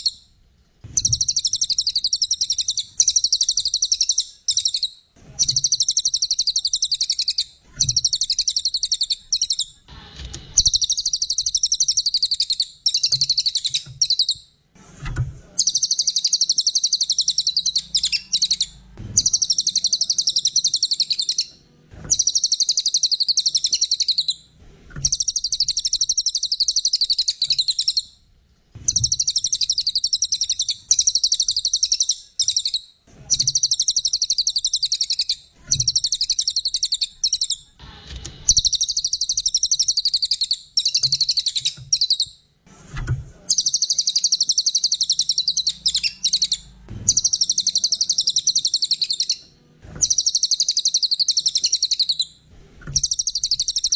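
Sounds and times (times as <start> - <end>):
bird singing high-pitched trills: 1.0 - 9.8, 10.6 - 14.4, 15.6 - 21.5, 22.1 - 24.4, 25.0 - 28.1, 28.9 - 37.6, 38.5 - 42.4, 43.5 - 49.4, 50.0 - 52.3, 53.0 - 53.9.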